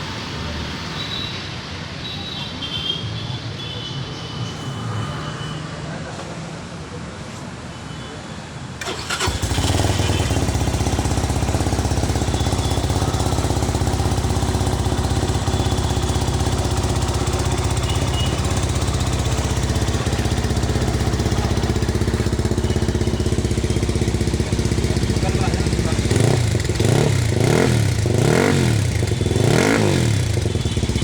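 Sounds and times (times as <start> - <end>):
motorcycle engine idling: 8.8 - 31.0.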